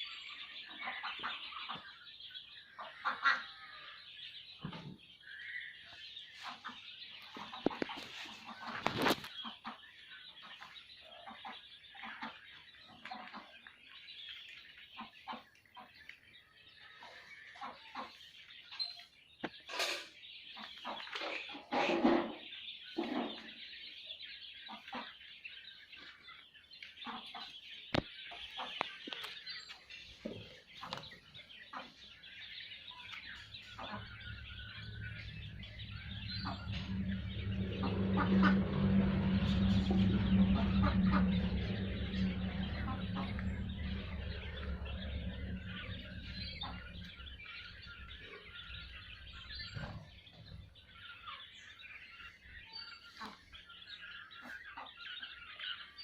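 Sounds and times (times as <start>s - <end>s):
quail chirping and clucking: 0.0s - 56.0s
low droning hum: 30.2s - 56.0s.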